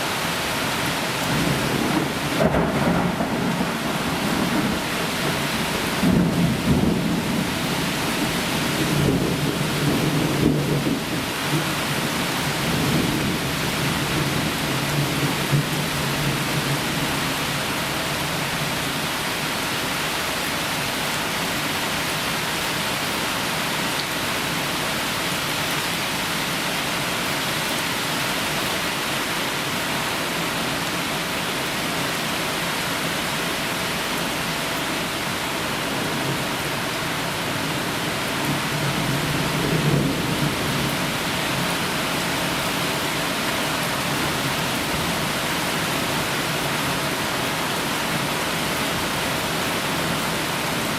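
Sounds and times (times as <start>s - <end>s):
heavy rain falling: 0.0s - 50.9s
low rumble of thunder: 1.3s - 17.6s, 38.5s - 42.4s.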